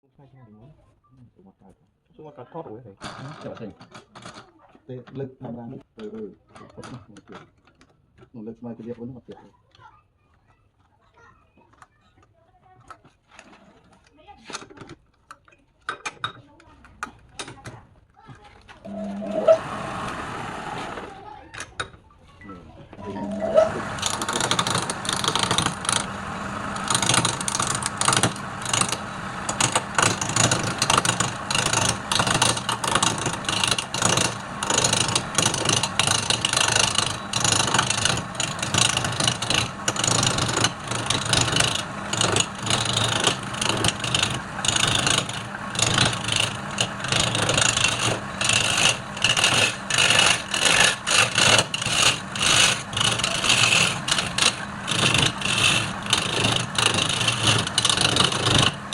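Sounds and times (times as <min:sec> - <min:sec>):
lathe motor hum: 0:18.9 - 0:21.2, 0:23.0 - 0:58.9
tool cutting spinning wood: 0:18.9 - 0:21.3, 0:23.0 - 0:58.9.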